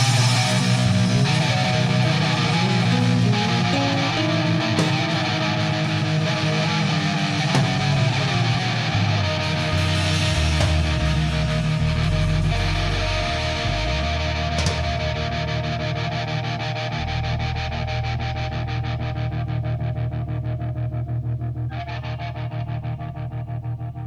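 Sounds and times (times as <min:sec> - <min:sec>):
cymbal crashes: 0:00.0 - 0:16.0
distorted electric guitar rock music: 0:00.0 - 0:24.0.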